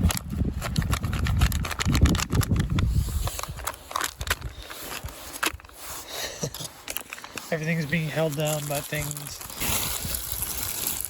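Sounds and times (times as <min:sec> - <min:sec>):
wind gusting across microphone: 0:00.0 - 0:05.3, 0:09.6 - 0:11.0.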